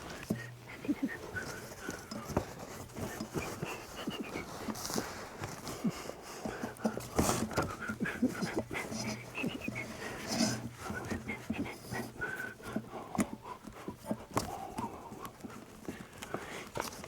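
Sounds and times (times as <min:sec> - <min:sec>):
dog panting: 0:00.2 - 0:14.4
dog whimpering: 0:00.6 - 0:02.2, 0:03.2 - 0:04.5, 0:07.9 - 0:12.4.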